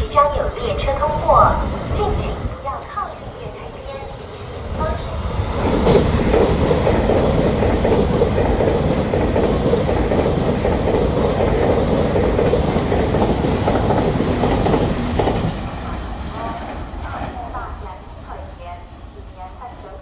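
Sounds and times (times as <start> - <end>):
train wheels rumbling: 0.0 - 20.0
wheels clicking over rail joints: 2.7 - 17.5.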